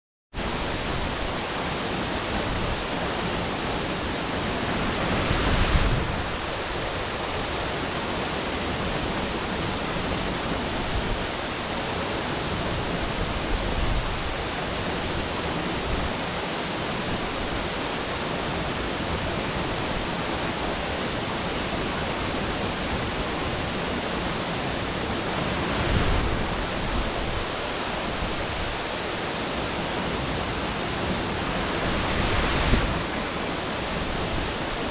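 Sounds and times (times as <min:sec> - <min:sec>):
waterfall rushing: 0:00.5 - 0:08.8, 0:21.1 - 0:34.9.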